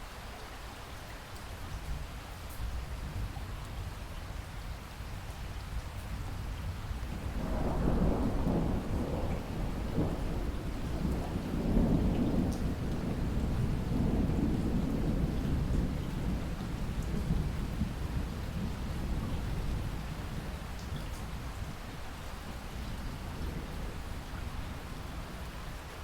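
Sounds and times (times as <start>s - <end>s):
steady rain: 0.0s - 26.0s
thunder rolling: 7.1s - 20.4s.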